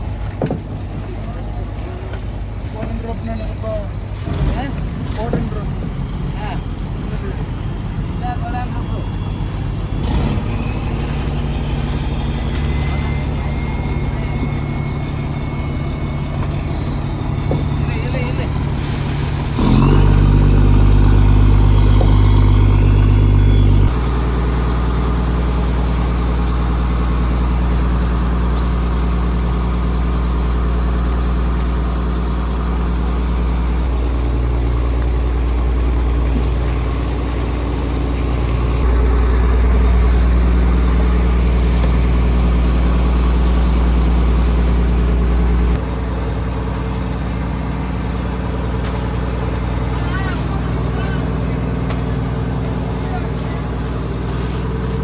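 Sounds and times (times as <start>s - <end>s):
boat engine drone: 0.0s - 55.0s
faint high whine: 8.2s - 55.0s.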